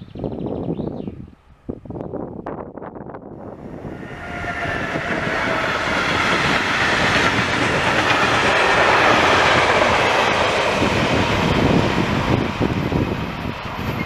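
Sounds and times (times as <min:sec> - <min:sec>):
freight train wheels rattling on rail: 0:03.4 - 0:14.0.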